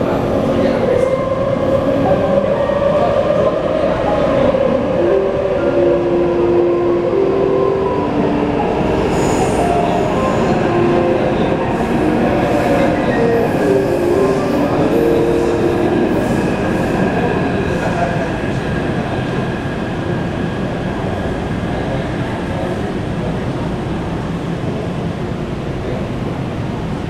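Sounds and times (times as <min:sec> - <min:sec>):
train wheels rumbling on track: 0:08.0 - 0:27.0.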